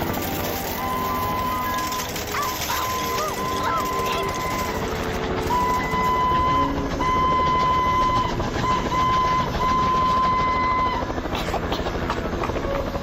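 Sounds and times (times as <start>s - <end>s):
cartoon train whistle blasts: 5.5s - 11.1s.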